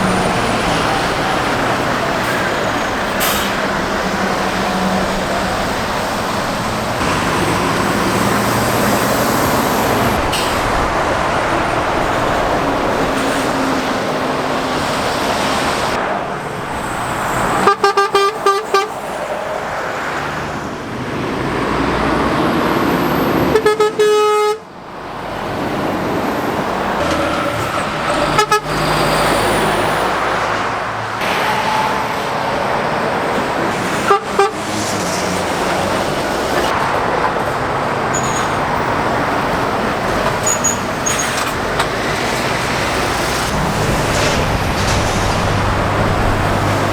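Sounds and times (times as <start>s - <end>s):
heavy road traffic: 0.0s - 46.9s
vehicle horns tooting: 17.5s - 19.1s, 23.4s - 24.7s, 28.2s - 29.8s, 33.9s - 34.9s.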